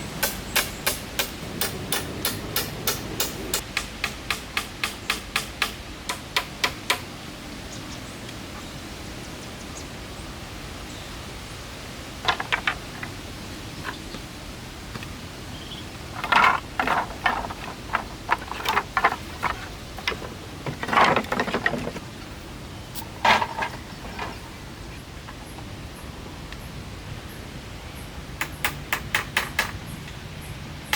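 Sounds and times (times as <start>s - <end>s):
steady hiss: 0.0s - 8.5s
hammering: 0.2s - 7.0s
scattered knocks: 0.2s - 7.0s, 16.2s - 22.0s.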